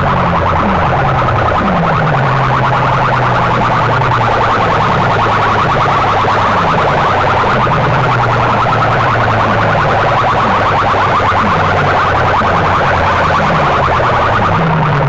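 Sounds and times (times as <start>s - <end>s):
electronic alarm warble: 0.0s - 15.0s
low hum: 0.0s - 15.0s.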